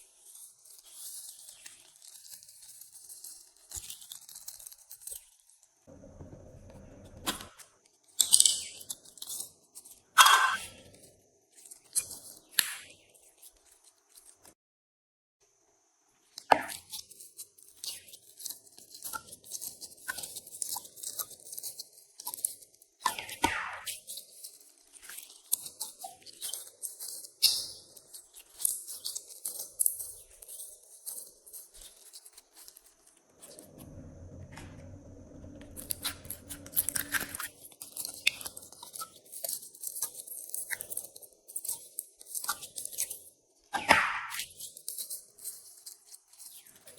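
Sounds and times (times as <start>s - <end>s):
low rumble: 5.9s - 7.3s, 33.5s - 37.4s.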